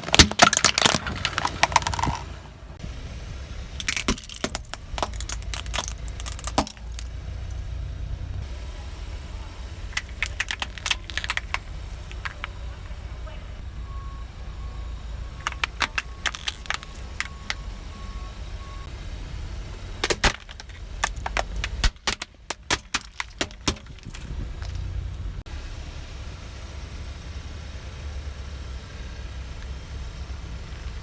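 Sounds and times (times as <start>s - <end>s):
tyre crushing brittle objects: 0.0s - 2.3s, 3.8s - 7.2s, 9.9s - 12.6s, 15.4s - 17.6s, 20.0s - 24.9s
car running: 0.0s - 31.0s.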